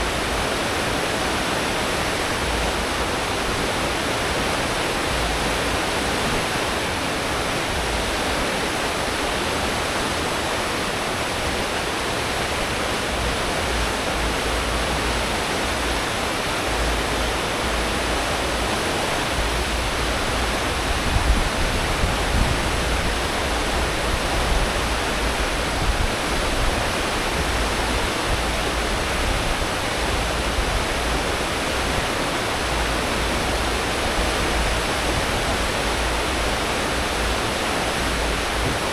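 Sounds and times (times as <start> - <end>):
churning water rushing: 0.0 - 38.9.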